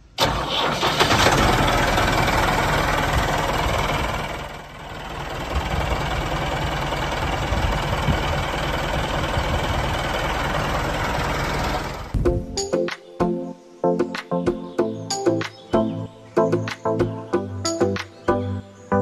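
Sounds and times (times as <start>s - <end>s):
small engine knocking rumble: 1.1s - 12.1s.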